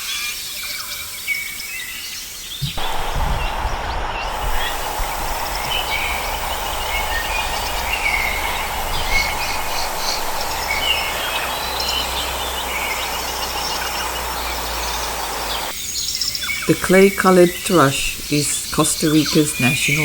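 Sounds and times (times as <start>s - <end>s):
steady background hiss: 2.8s - 15.8s
birds chirping and whistling: 2.8s - 16.3s.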